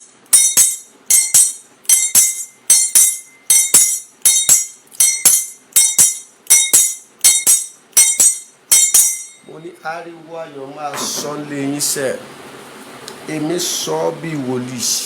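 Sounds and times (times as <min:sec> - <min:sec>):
jingling metal percussion: 0:00.0 - 0:09.5.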